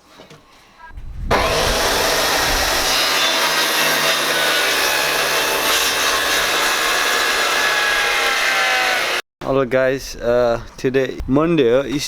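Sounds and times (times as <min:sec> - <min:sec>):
electric power tool whirring: 0:01.3 - 0:09.2.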